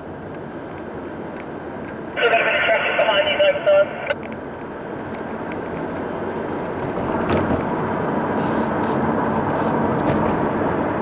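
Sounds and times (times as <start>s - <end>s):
highway traffic noise: 0.0s - 11.0s.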